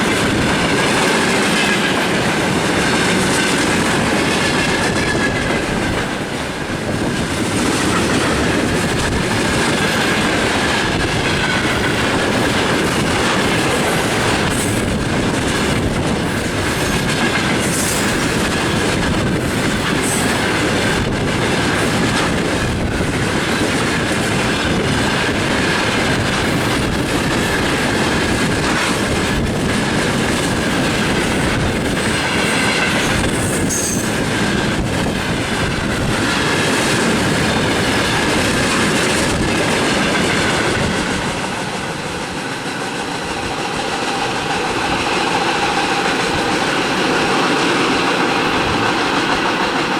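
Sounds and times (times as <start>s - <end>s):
train rumble: 0.0s - 49.9s
train wheels clacking over rail joints: 0.0s - 49.9s
high-pitched wheel squeal: 32.6s - 34.2s.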